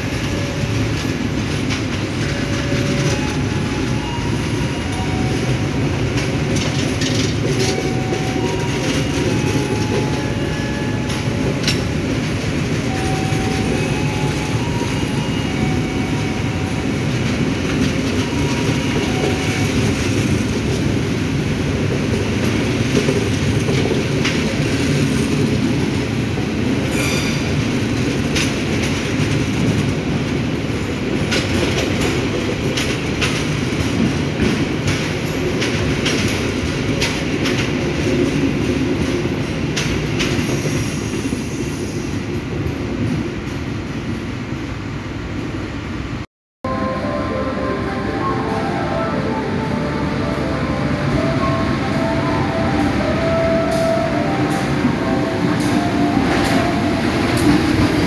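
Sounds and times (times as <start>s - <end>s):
train wheels rumbling on rails: 0.0s - 46.2s, 47.0s - 58.0s
track clicks and clacks: 0.2s - 20.9s, 31.2s - 40.5s, 48.4s - 58.0s.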